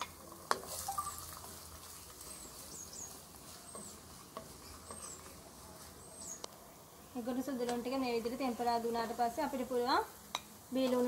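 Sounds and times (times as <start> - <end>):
garlic sizzling in hot oil: 0.0 - 6.4, 7.0 - 11.0
spatula scraping pan: 1.5 - 5.4.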